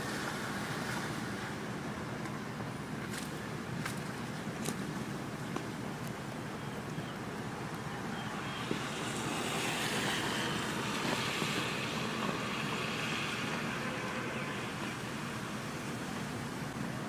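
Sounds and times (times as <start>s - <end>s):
steady rushing noise: 7.2s - 17.0s.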